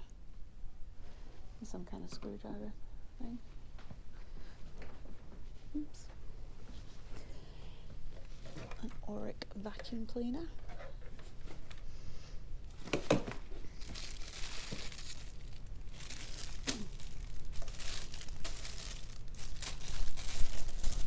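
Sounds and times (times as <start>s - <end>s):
crinkling and rustling: 7.9s - 21.0s.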